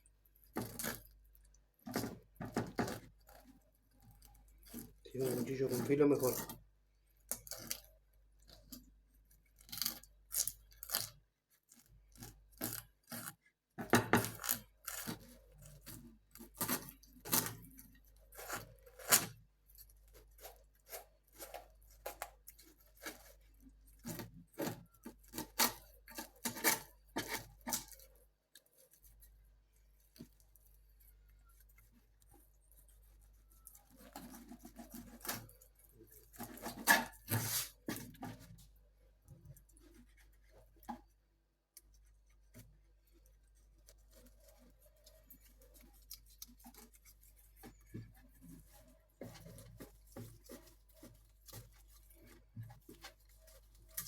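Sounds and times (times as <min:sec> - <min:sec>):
knife scraping and cutting: 0:00.6 - 0:01.2, 0:01.8 - 0:06.6, 0:07.2 - 0:07.9, 0:09.6 - 0:29.4, 0:30.1 - 0:38.8.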